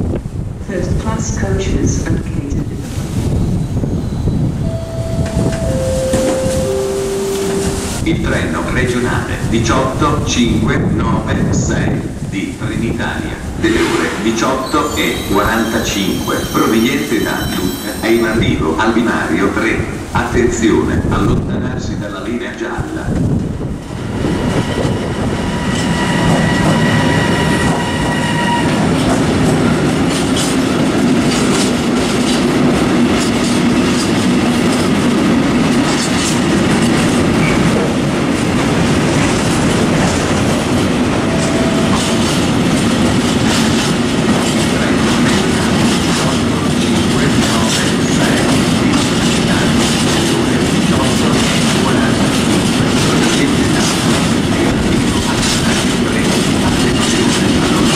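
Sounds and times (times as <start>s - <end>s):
freight train rumble: 0.0s - 57.9s
high steady whine: 4.6s - 8.5s
wheels clacking over rail joints: 28.8s - 57.9s.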